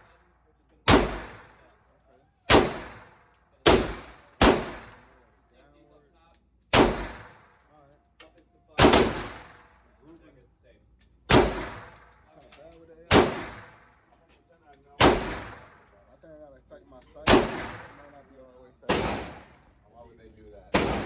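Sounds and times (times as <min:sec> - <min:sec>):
gunshots ringing: 0:00.8 - 0:01.6, 0:02.5 - 0:05.1, 0:06.7 - 0:07.5, 0:08.8 - 0:09.7, 0:11.3 - 0:12.1, 0:13.1 - 0:13.9, 0:15.0 - 0:15.9, 0:17.2 - 0:18.2, 0:18.8 - 0:19.7, 0:20.7 - 0:21.0.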